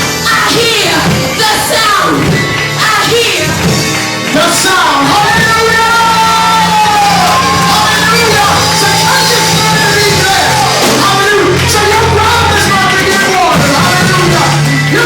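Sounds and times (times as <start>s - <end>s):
worship music: 0.0s - 15.0s
people singing and calling out: 0.2s - 3.6s.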